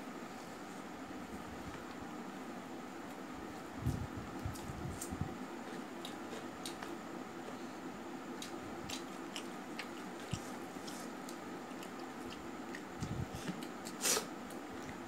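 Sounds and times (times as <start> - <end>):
wet chewing: 8.4 - 10.5.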